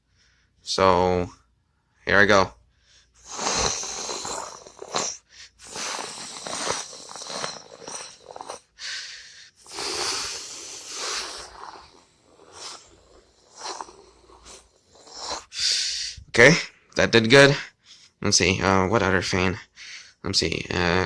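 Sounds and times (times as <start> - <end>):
person imitating jet with mouth: 3.2 - 8.7, 9.7 - 15.6.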